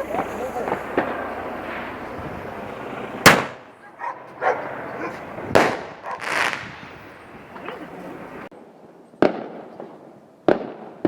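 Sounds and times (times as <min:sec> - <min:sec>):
faint firework pops: 0:00.0 - 0:03.6, 0:05.1 - 0:06.9
firework bang: 0:00.0 - 0:07.8.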